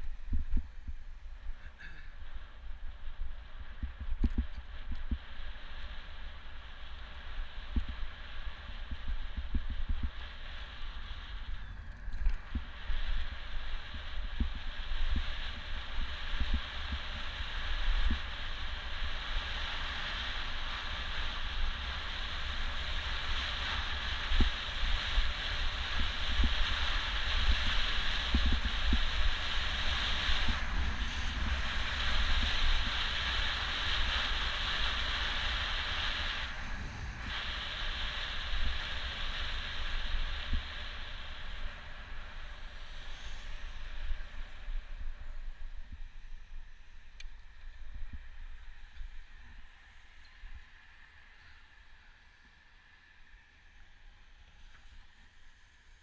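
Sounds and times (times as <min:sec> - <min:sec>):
road and air hiss: 0:00.0 - 0:56.0
wind buffeting microphone: 0:07.1 - 0:49.6.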